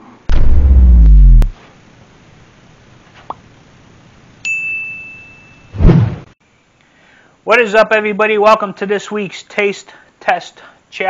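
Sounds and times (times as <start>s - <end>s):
deep falling boom: 0.3s - 1.5s
high ringing ding: 4.4s - 5.7s.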